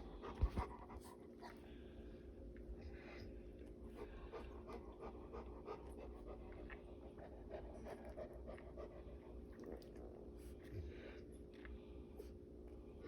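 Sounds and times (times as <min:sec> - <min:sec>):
dog panting: 0:00.0 - 0:01.6, 0:03.9 - 0:09.3.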